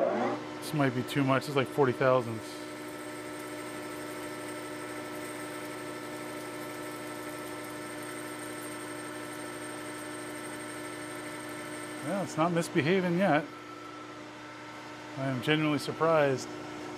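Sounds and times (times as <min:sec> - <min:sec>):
metal lathe humming: 0:02.6 - 0:14.2.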